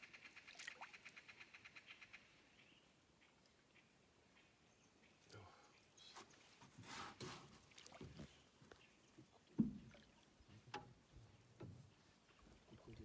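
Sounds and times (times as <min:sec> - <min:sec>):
knocks against a boat hull: 0:09.5 - 0:09.9.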